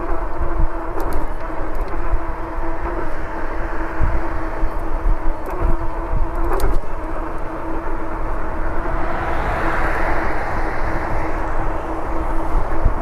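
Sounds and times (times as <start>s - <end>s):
e-bike motor hum: 0.0s - 13.0s
wind and road noise: 0.0s - 13.0s.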